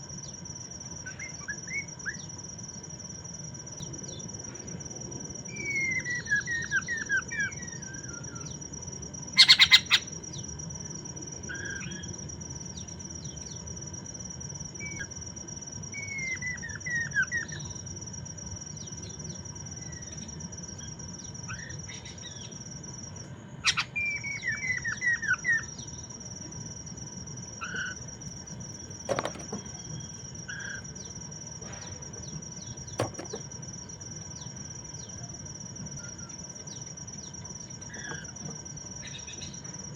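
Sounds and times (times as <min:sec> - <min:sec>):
bird whistled song: 0:01.0 - 0:02.3, 0:05.5 - 0:08.6, 0:09.4 - 0:10.4, 0:15.9 - 0:17.8, 0:23.6 - 0:26.1, 0:36.0 - 0:38.2
bird harsh rattle: 0:28.8 - 0:30.0, 0:32.9 - 0:33.4.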